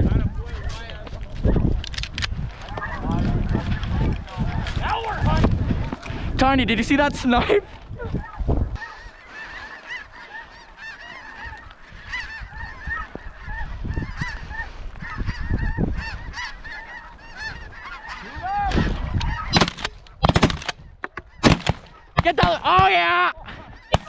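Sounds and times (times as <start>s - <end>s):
geese honking: 8.2s - 23.1s, 23.7s - 24.0s
shotgun shot: 19.6s - 20.8s, 21.4s - 22.9s.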